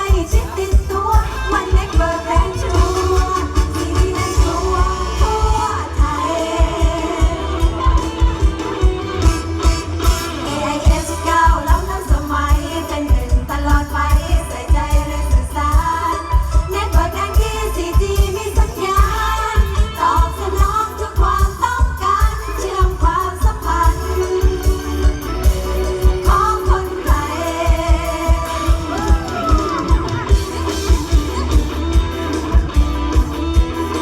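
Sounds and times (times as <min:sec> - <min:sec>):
person singing: 0:00.0 - 0:08.9
heavy drum beat and bass: 0:00.0 - 0:34.0.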